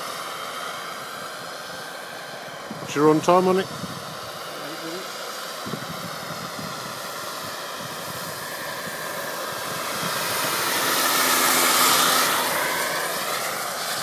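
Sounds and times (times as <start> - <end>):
model helicopter flying: 0.0 - 14.0.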